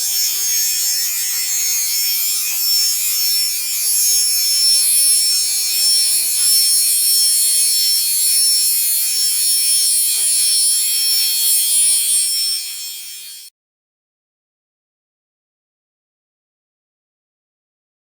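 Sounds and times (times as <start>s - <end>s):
high-pitched whine: 0.0s - 13.5s.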